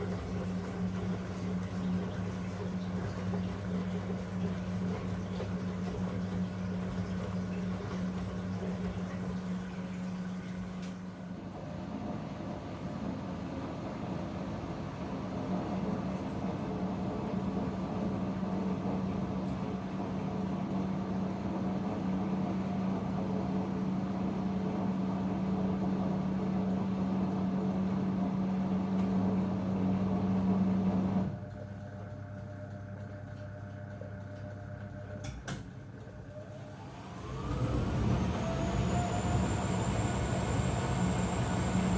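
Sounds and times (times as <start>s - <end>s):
washing machine motor hum: 0.0s - 41.9s.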